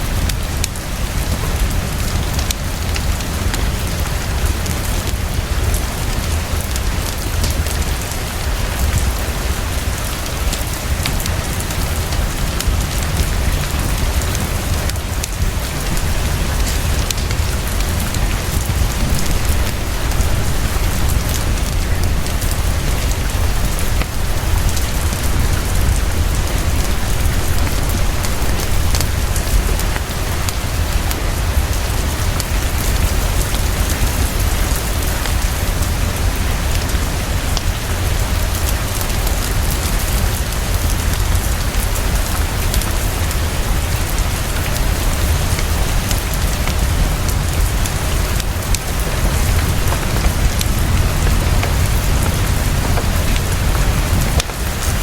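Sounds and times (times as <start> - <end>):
heavy rain: 0.0 - 55.0
raindrops ticking: 0.0 - 55.0
low rumble: 46.0 - 55.0.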